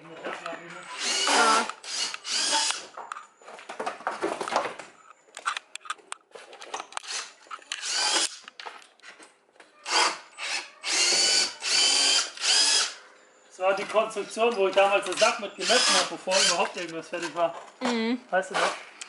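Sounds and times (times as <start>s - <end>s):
power tool motor whining: 0.9s - 2.9s, 9.9s - 13.0s, 15.2s - 16.7s.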